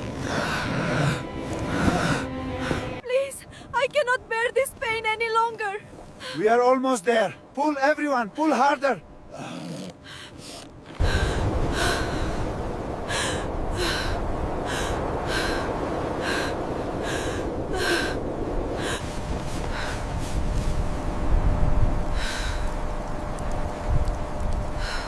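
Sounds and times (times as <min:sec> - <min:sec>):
blizzard wind rumble: 0:00.0 - 0:03.7, 0:11.0 - 0:25.0
people breathing heavily: 0:00.1 - 0:03.7, 0:09.3 - 0:12.5.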